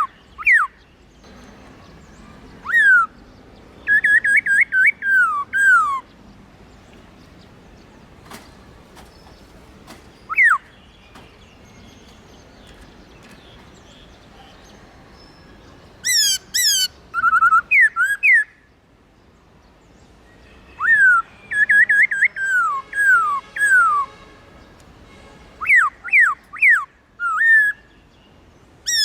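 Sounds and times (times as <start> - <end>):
bird whistling song: 0.0 - 6.2, 8.2 - 18.6, 20.7 - 24.2, 25.6 - 28.1.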